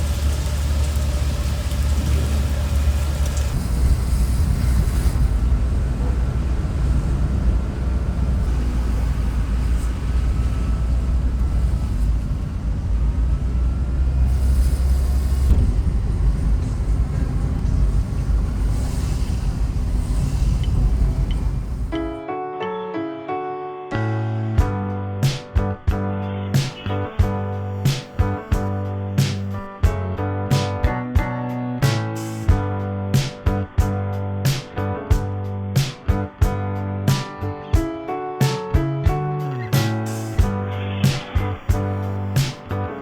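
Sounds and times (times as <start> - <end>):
road spray hiss: 0.0 - 12.5, 14.0 - 22.0, 26.4 - 29.7, 31.8 - 32.6, 39.4 - 43.0
car engine and tyre rumble: 0.0 - 22.0.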